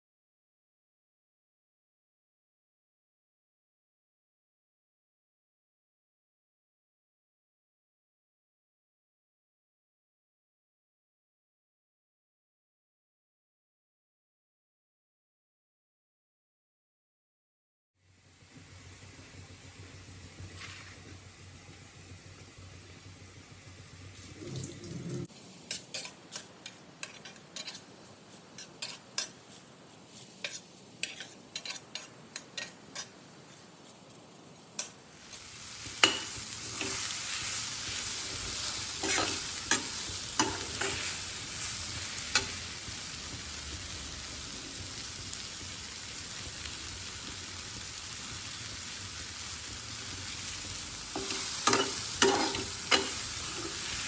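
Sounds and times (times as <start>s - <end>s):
food sizzling in hot oil: 18.0s - 54.0s
spatula stirring: 25.3s - 35.0s, 35.9s - 42.6s, 51.1s - 54.0s
metal utensil tapping a pan: 30.4s - 33.2s, 36.0s - 37.1s, 39.0s - 41.1s, 51.2s - 54.0s.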